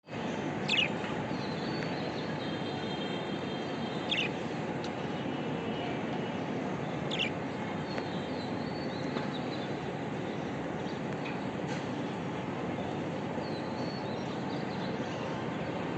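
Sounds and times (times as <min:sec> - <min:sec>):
steady background noise: 0:00.0 - 0:15.9
budgerigars chattering: 0:00.7 - 0:00.9, 0:04.1 - 0:04.4, 0:07.1 - 0:07.4.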